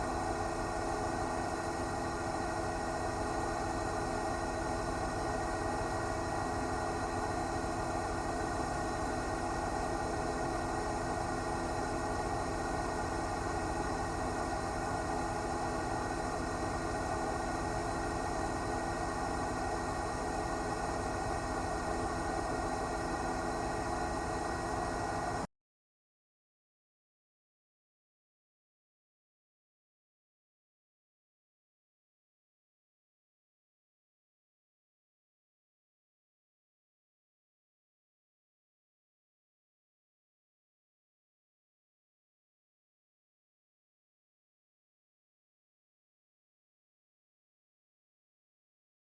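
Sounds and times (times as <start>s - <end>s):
helicopter rotor and engine: 0.0s - 25.5s.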